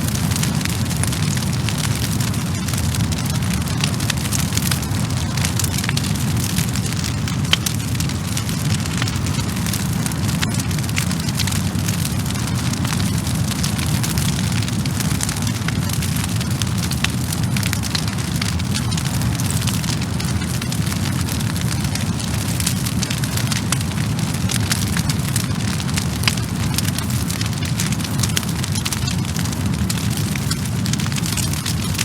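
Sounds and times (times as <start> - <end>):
wood fire crackling and popping: 0.0 - 32.0.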